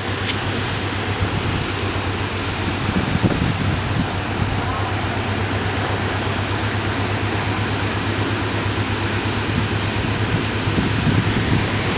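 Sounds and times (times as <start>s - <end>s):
heavy rain hissing: 0.0s - 11.9s
low steady hum: 0.0s - 11.9s.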